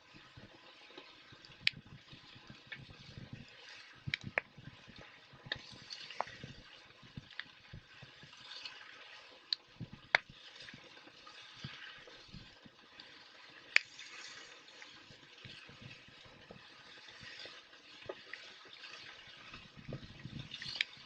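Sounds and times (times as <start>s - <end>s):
campfire crackling and popping: 4.0s - 4.6s.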